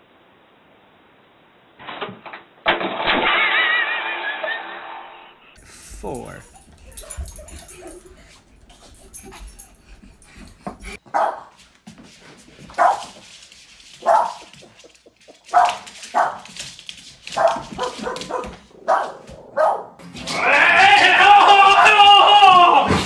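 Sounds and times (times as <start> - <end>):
dog barking: 11.1 - 11.6, 12.8 - 13.2, 14.0 - 14.5, 15.5 - 16.6, 17.3 - 20.0.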